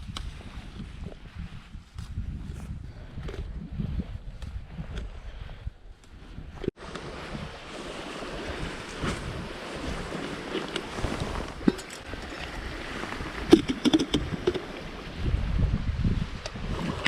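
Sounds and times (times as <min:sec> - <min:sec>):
wind noise on microphone: 0:00.0 - 0:17.0
water lapping around canoe: 0:02.9 - 0:15.5, 0:16.3 - 0:17.0.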